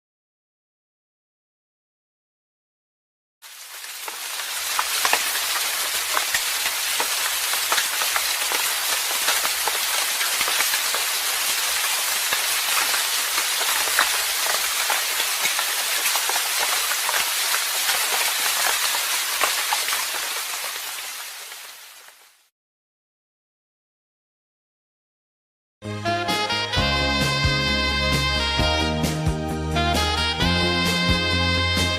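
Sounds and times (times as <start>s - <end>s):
dense hiss with crackles: 3.4s - 22.5s.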